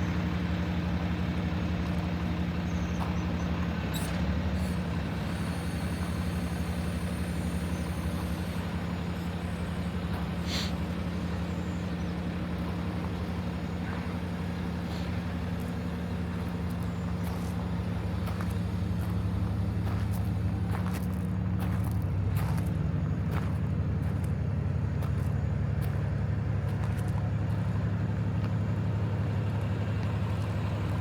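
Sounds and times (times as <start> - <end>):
diesel engine idling: 0.0 - 31.0
brief hiss: 10.4 - 10.9.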